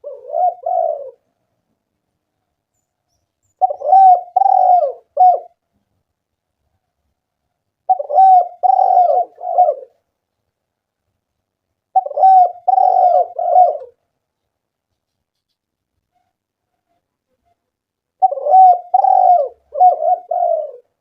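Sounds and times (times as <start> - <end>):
dove cooing: 0.0 - 1.3, 3.5 - 5.6, 7.9 - 10.0, 11.9 - 14.0, 18.2 - 21.0.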